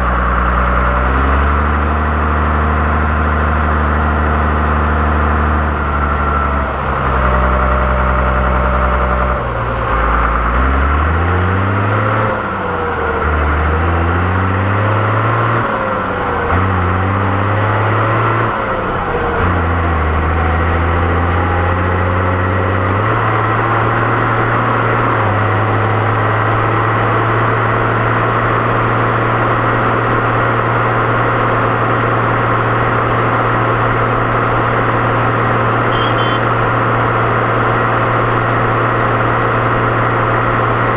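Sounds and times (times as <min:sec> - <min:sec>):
tractor diesel engine revving: 0:00.0 - 0:40.9
turbo whistle: 0:35.9 - 0:36.5.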